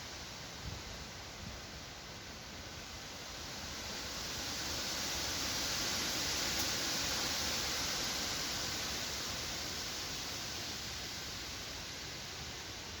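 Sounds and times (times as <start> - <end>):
wind rustling leaves: 0.0 - 13.0.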